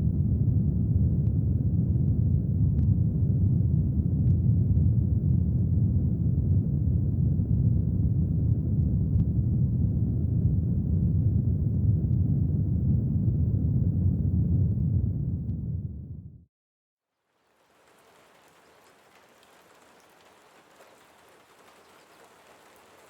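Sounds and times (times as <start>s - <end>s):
faint scattered ticks: 17.3s - 23.0s.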